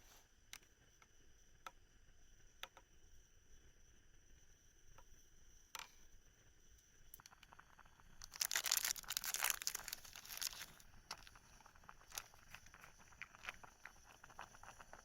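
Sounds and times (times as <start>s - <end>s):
plastic material rustling: 8.2s - 11.4s.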